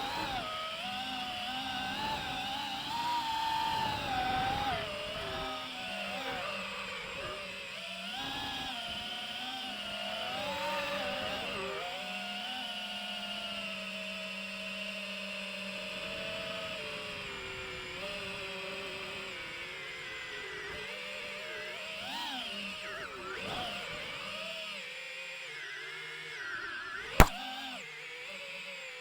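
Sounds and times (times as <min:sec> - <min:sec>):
drone motors whining: 0:00.0 - 0:27.6.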